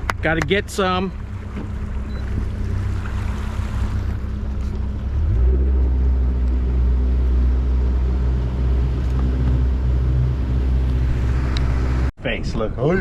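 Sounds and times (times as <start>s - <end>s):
outboard motor running: 0.0s - 12.1s.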